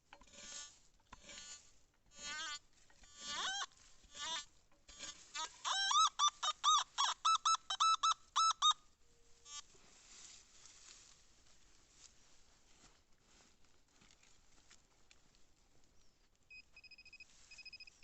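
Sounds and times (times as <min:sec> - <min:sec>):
bird calling ringing notes: 0:05.6 - 0:08.8
faint rustling: 0:09.2 - 0:18.0.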